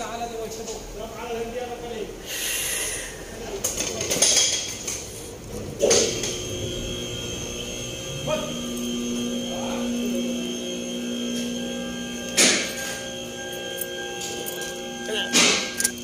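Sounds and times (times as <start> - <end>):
electrical hum with high whine: 0.0 - 16.0
metallic knocks and clinks: 13.7 - 16.0.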